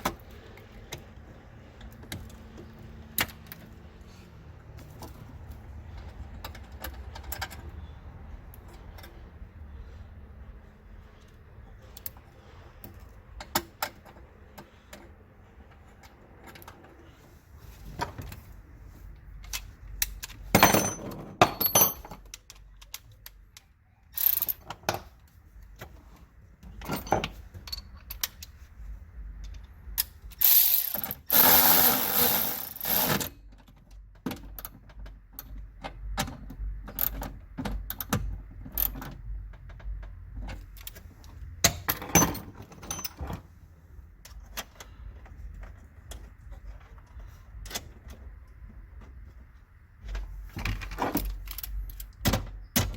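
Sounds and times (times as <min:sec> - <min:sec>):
tool ratcheting: 0:30.3 - 0:33.3
metal clicks and knocks: 0:33.1 - 0:43.4.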